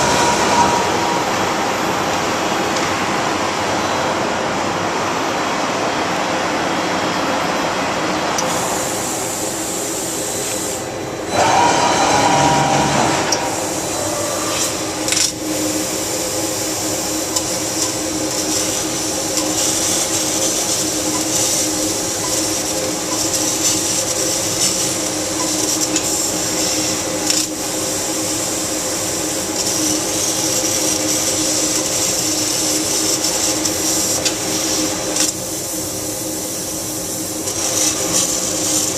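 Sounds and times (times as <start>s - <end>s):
machine whining: 0.0s - 4.0s, 10.9s - 35.2s
laser cutting machine humming: 0.0s - 4.6s, 8.2s - 38.9s.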